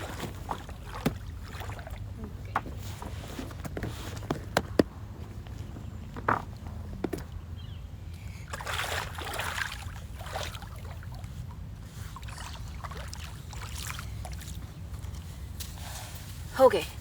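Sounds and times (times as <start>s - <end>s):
paddle splashing in water: 0.0s - 4.1s, 8.5s - 15.2s
low steady rumble: 0.0s - 17.0s.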